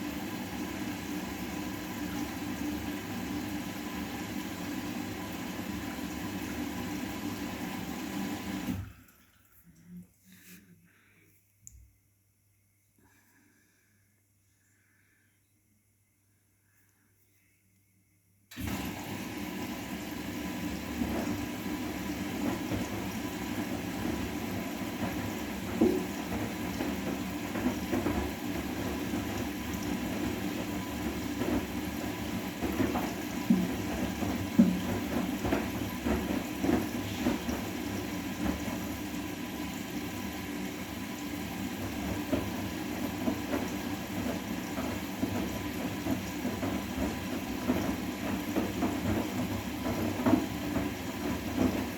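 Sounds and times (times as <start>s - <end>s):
water sloshing in washing machine: 0.0s - 9.9s, 18.5s - 51.9s.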